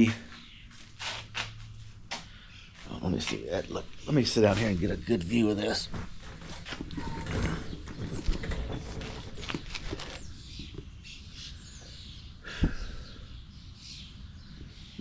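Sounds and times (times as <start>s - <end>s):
clicks and rustling of movement: 5.6s - 10.8s.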